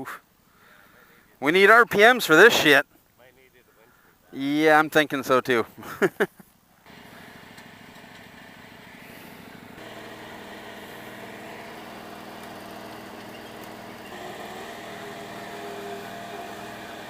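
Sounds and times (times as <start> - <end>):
garden tractor engine under load: 6.9 - 17.0.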